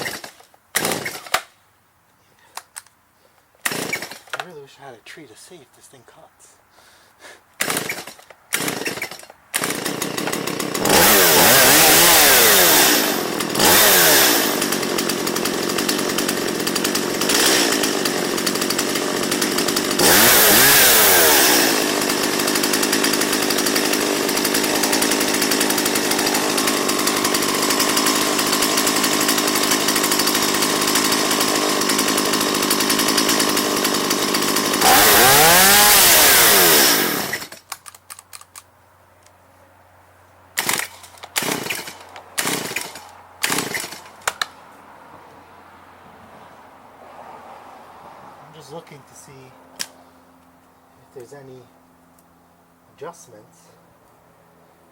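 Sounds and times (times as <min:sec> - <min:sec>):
chainsaw idling and revving: 0:00.0 - 0:01.4, 0:03.6 - 0:04.6, 0:07.6 - 0:37.6, 0:40.6 - 0:44.5.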